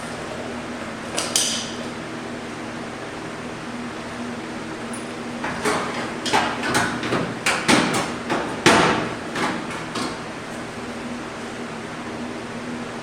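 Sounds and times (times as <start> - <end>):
hammer striking sheet steel: 5.4 - 10.6.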